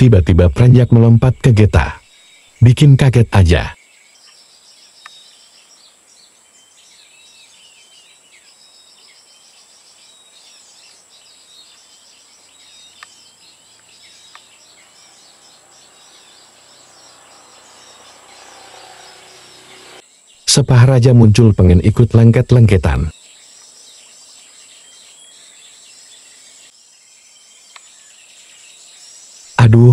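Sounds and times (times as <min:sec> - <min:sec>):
songbirds chirping: 0:00.0 - 0:29.9
high-pitched insect drone: 0:08.4 - 0:20.4.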